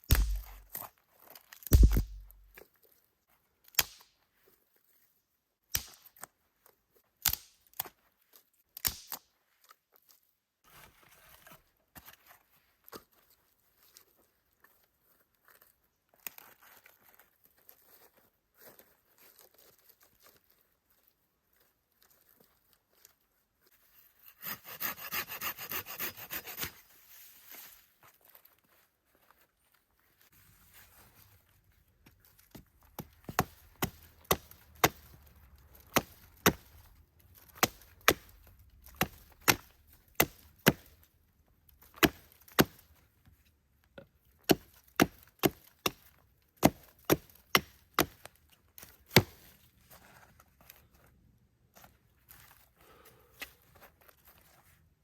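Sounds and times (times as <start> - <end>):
wood chopping blows: 0.0 - 0.8, 1.7 - 2.5.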